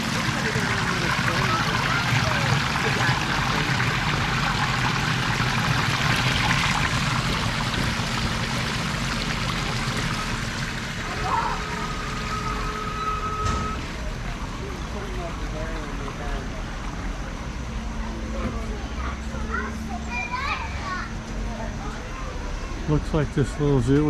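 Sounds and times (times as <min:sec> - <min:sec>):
running water rushing: 0:00.0 - 0:19.9
thin high tone: 0:11.0 - 0:13.9.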